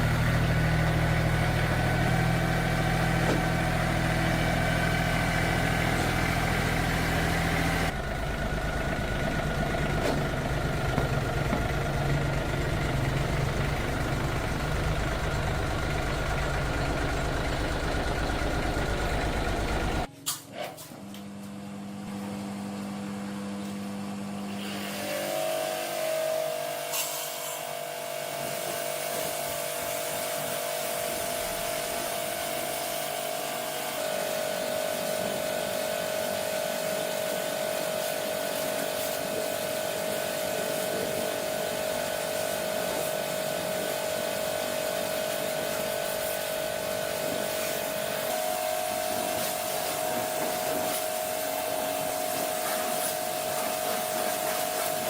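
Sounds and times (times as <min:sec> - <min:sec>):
machine whining: 0:00.0 - 0:20.1.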